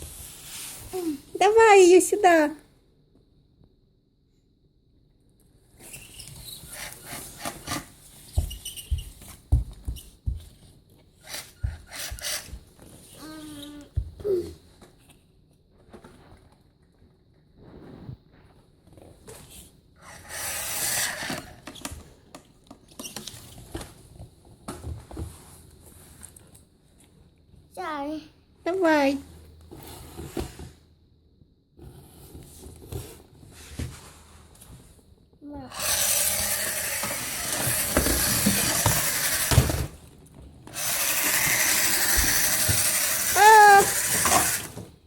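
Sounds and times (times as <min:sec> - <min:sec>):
toy motor and gears whirring: 0:05.8 - 0:09.1, 0:11.2 - 0:13.7, 0:20.0 - 0:21.8, 0:35.7 - 0:40.0, 0:40.7 - 0:44.9.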